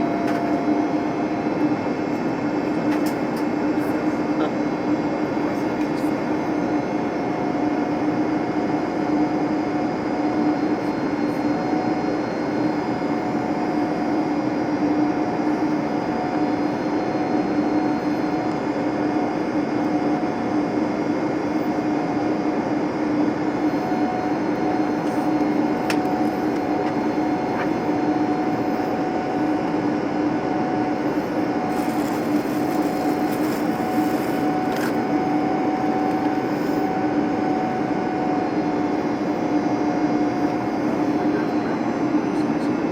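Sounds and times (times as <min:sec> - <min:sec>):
constant low hum: 0:00.0 - 0:20.7, 0:21.5 - 0:42.9
aircraft cabin engine noise: 0:00.0 - 0:42.9.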